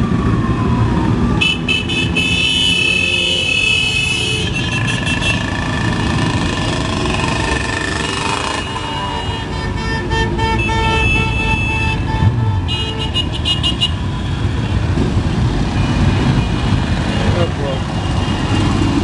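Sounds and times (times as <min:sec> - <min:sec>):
motorcycle engines rumbling: 0:00.0 - 0:19.0
vehicle horns honking: 0:01.4 - 0:05.6, 0:07.9 - 0:14.8.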